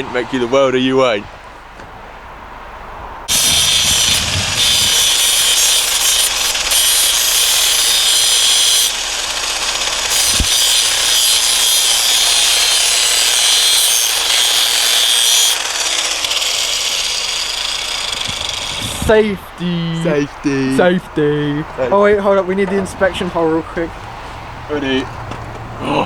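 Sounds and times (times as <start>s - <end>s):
angle grinder grinding metal: 3.3s - 20.2s.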